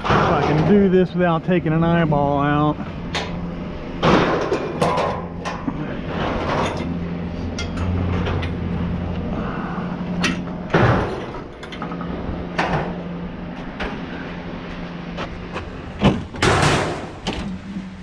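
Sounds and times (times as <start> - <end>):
scrap metal clanking: 0.0 - 1.4, 4.0 - 18.0
engine idling: 0.0 - 18.0.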